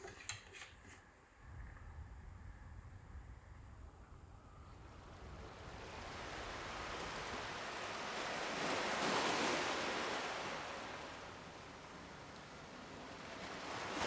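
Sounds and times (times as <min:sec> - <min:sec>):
sea waves on a shore: 0:04.8 - 0:14.0.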